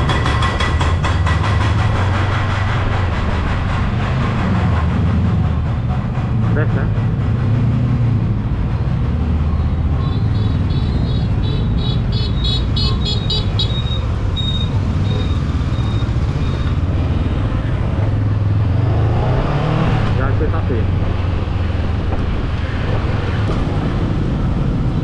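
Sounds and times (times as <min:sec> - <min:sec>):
traffic: 0:00.0 - 0:25.0
motorbike engine and wind rumble: 0:01.7 - 0:25.0
high beeping: 0:12.2 - 0:17.4.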